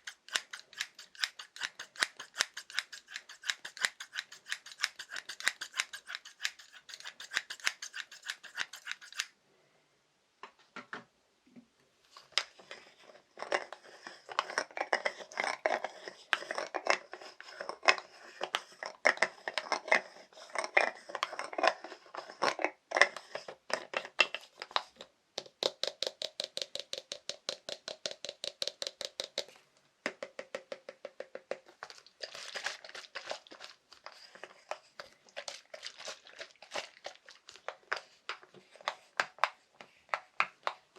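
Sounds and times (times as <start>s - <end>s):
fast tapping on small objects: 25.4s - 33.8s.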